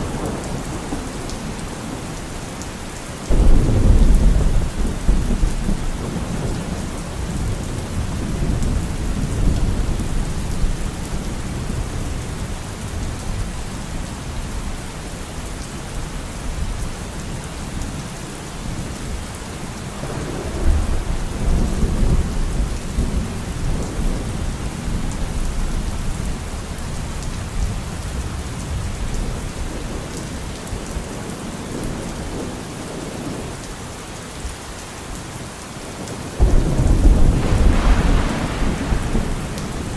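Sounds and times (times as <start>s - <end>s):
steady rain falling: 0.0s - 39.9s
thunder rumbling: 3.3s - 12.1s, 36.4s - 39.9s.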